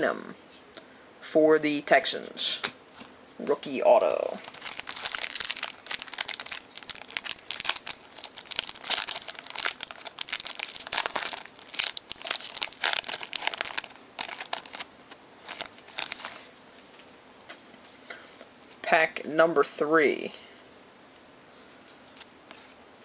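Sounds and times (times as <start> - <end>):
wrapper crinkling and tearing: 4.0 - 16.5.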